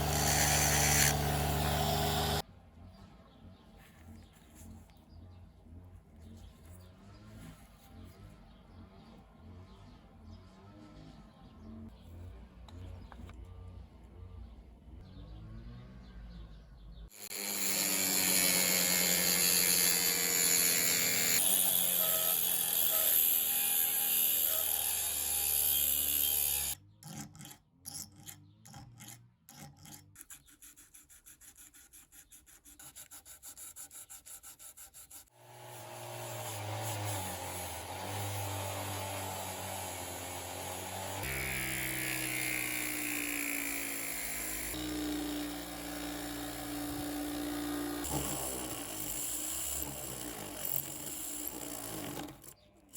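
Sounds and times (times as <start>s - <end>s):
power tool sanding: 0.0s - 2.4s, 17.2s - 26.8s, 35.4s - 52.6s
rasping strokes: 0.0s - 2.4s, 17.2s - 52.9s.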